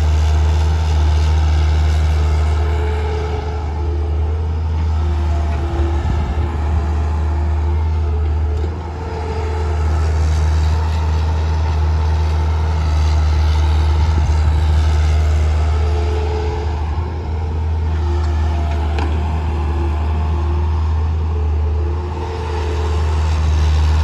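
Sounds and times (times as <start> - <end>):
heavy diesel engine humming: 0.0 - 24.0.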